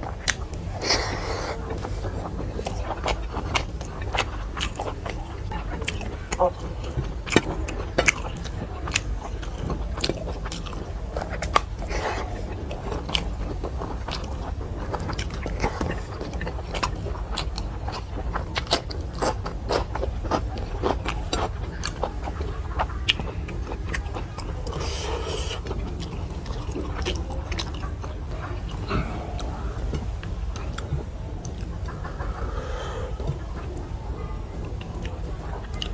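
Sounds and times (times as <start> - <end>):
person chewing food: 0.0 - 35.9
low hum: 24.5 - 35.9.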